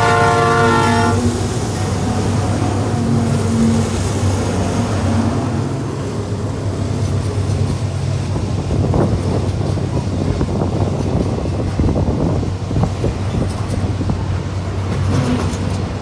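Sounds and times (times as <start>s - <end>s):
freight train rolling past: 0.0s - 16.0s
train wheels knocking: 6.5s - 16.0s.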